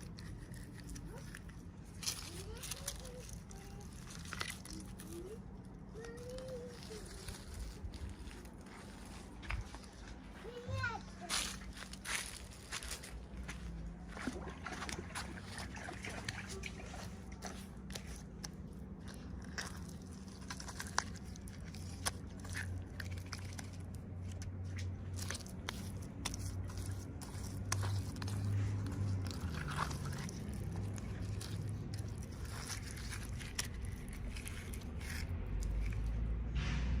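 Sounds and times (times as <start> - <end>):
toy packaging being opened: 0.0 - 9.3, 17.4 - 36.2
low steady hum: 0.0 - 37.0.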